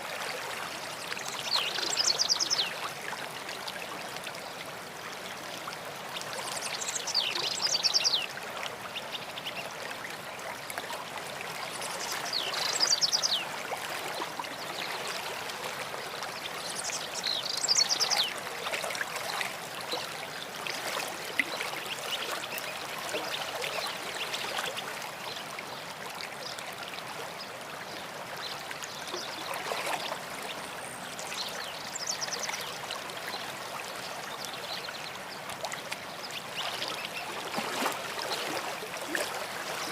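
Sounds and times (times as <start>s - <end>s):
stream running: 0.0s - 39.9s
songbird singing: 1.2s - 2.8s, 6.4s - 8.3s, 11.8s - 13.5s, 16.4s - 18.4s, 28.5s - 32.8s.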